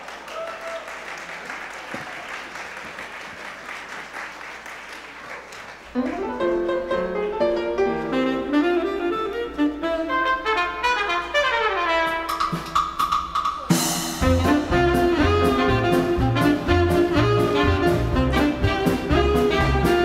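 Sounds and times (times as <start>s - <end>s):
dance band horns and brass: 8.0s - 13.0s, 13.7s - 20.0s
full band with drums and bass: 12.1s - 20.0s.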